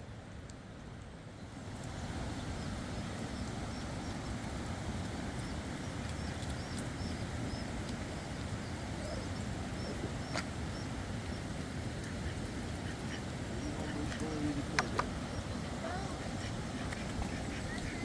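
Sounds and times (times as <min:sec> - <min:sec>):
steady rushing noise: 0:01.6 - 0:18.0
small bird chirping: 0:05.4 - 0:11.4, 0:13.6 - 0:18.0.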